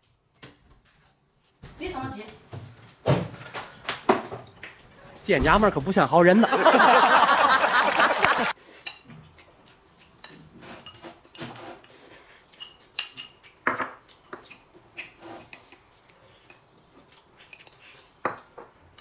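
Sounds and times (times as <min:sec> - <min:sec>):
cutlery and dishes clinking: 0:08.8 - 0:15.8.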